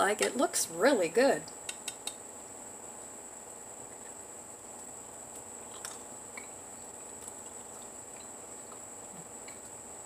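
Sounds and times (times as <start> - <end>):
steady high-pitched whine: 0.0 - 10.0
faint chewing mouth clicks: 5.6 - 9.8.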